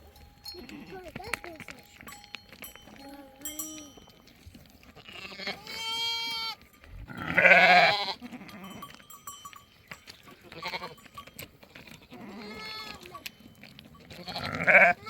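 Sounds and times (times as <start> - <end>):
goats or sheep bleating: 0.4 - 1.2, 5.0 - 9.1, 10.3 - 13.4, 14.0 - 15.0.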